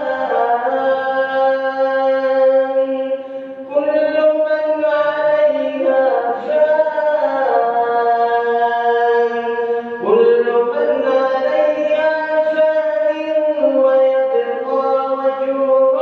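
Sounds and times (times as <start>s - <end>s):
man chanting melodic recitation: 0.0s - 16.0s.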